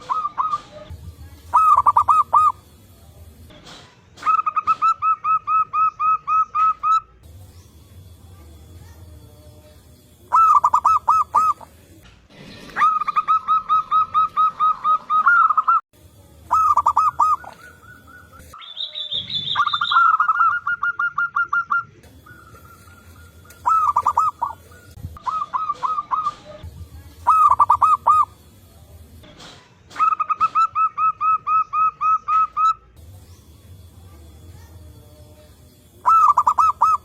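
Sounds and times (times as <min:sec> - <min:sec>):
higher-pitched bird call: 0:00.0 - 0:00.8, 0:01.5 - 0:02.6, 0:10.3 - 0:11.7, 0:12.8 - 0:15.8, 0:16.5 - 0:26.6, 0:27.2 - 0:28.4, 0:36.0 - 0:37.0
doves cooing: 0:00.0 - 0:02.6, 0:04.2 - 0:07.0, 0:10.3 - 0:12.0, 0:12.7 - 0:15.8, 0:16.5 - 0:18.6, 0:19.4 - 0:28.4, 0:36.0 - 0:37.0.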